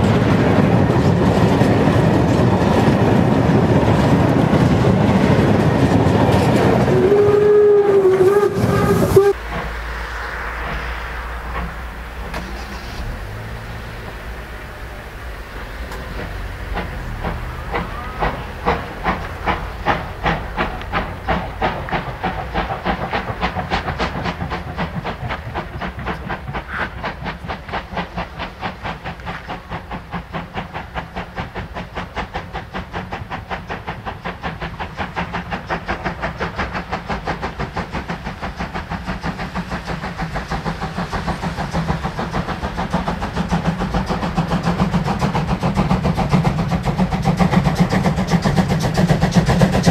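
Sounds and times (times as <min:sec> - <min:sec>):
steam hissing: 0:00.0 - 0:49.9
steam locomotive chuffing: 0:00.0 - 0:49.9
low rumble: 0:07.9 - 0:23.5.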